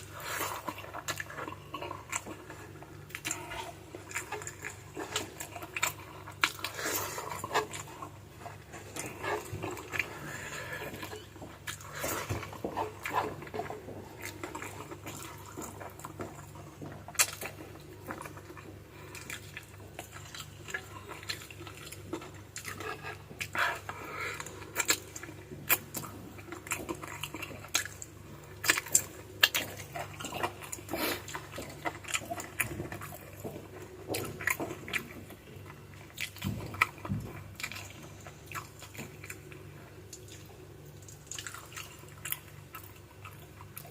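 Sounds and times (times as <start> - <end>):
wet chewing and lip-smacking: 0.0 - 43.9.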